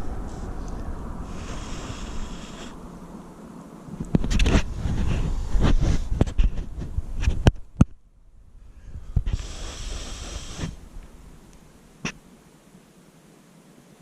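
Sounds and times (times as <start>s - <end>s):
breathy puff of air: 1.2s - 2.9s, 8.7s - 10.9s.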